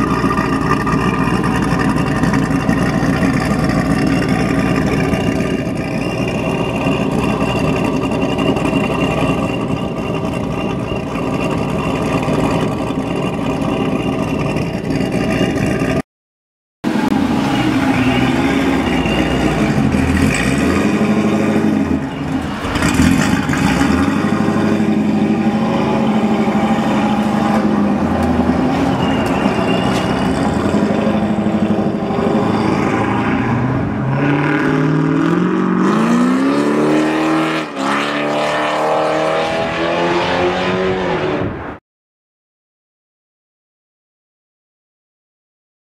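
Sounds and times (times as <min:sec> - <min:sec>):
car engine revving: 0:16.9 - 0:41.7.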